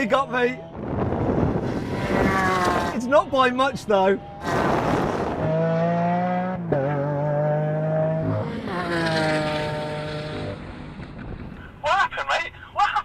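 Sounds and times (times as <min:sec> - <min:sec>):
sports car engine revving: 0:00.0 - 0:11.1.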